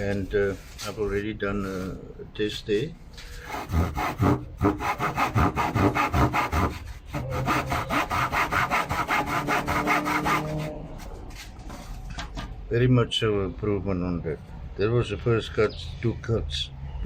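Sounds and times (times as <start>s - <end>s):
hand saw cutting wood: 3.4s - 11.1s.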